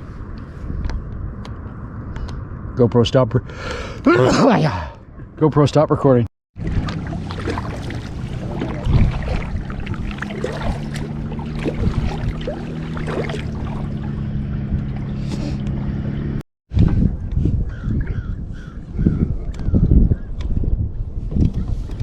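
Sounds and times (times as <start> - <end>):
wind on microphone: 0.0 - 2.8, 6.6 - 22.0
water splashing and sloshing: 6.6 - 17.1.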